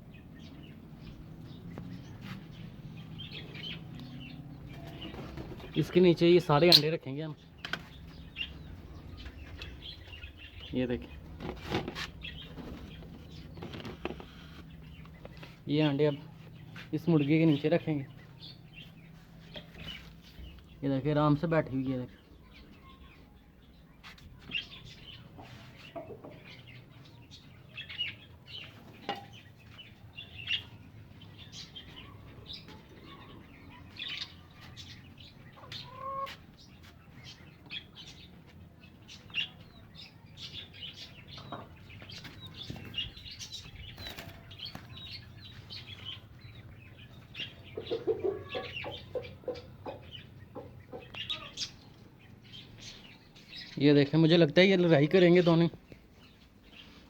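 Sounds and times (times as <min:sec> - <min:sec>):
low clucking calls: 0:35.5 - 0:36.6, 0:47.3 - 0:51.8.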